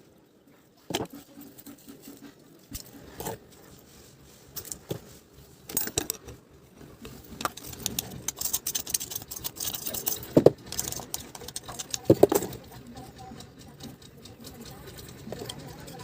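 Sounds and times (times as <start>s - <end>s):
small parts and tools rattling: 4.5s - 16.0s.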